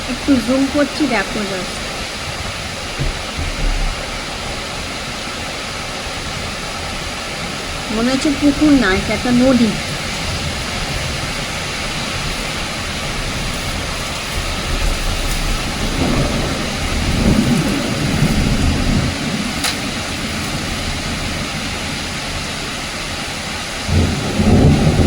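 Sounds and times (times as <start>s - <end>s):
heavy rain hissing: 0.0s - 25.0s.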